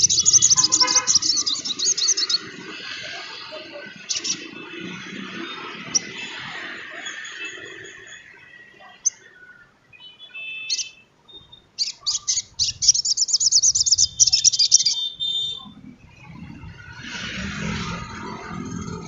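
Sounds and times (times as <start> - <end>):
bird high chattering trill: 0.0 - 4.9, 10.6 - 15.8.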